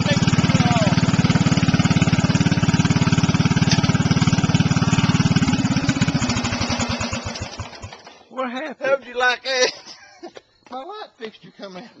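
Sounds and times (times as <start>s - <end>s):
lawn mower engine running: 0.0s - 8.3s.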